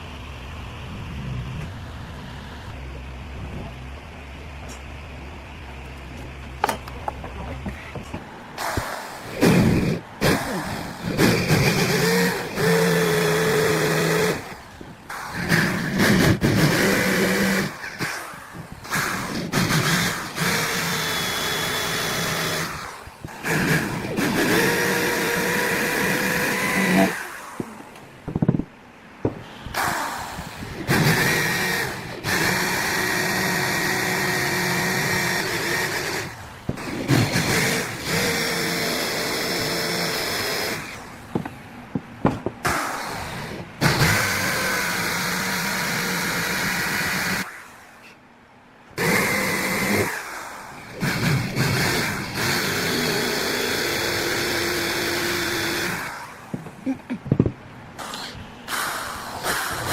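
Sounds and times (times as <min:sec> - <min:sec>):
electric power tool running: 0:08.6 - 0:17.8, 0:18.9 - 0:27.5, 0:51.0 - 0:56.3.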